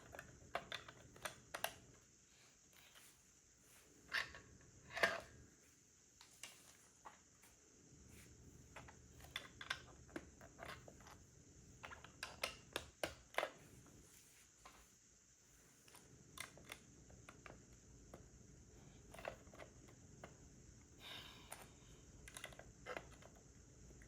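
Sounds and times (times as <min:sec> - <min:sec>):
plastic bricks clicking: 0:00.0 - 0:01.9.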